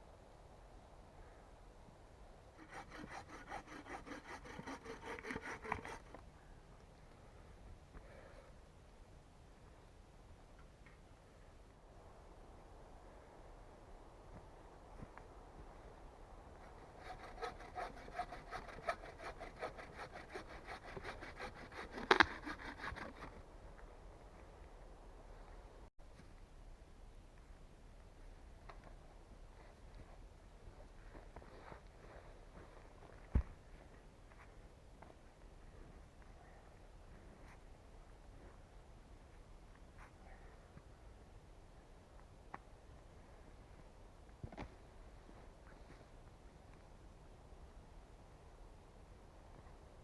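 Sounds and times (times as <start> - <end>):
hand saw cutting wood: 2.6 - 6.2, 16.7 - 23.4.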